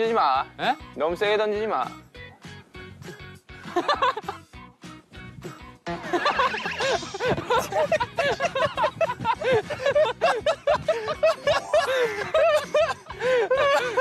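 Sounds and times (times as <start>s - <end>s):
men laughing: 3.7s - 4.4s, 5.9s - 14.0s.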